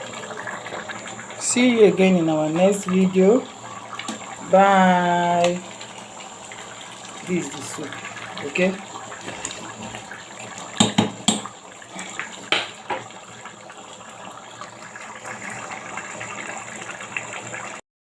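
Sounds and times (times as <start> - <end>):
steady watery noise: 0.0 - 17.8
sharp knocks: 10.8 - 11.4.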